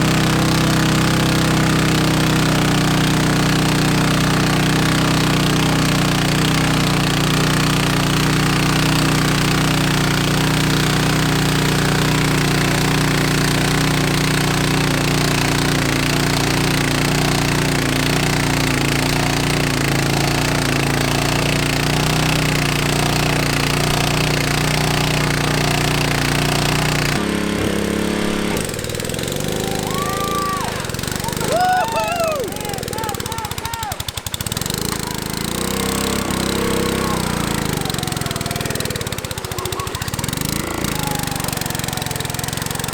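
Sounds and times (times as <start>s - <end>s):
lawn tractor engine revving high: 0.0s - 42.9s.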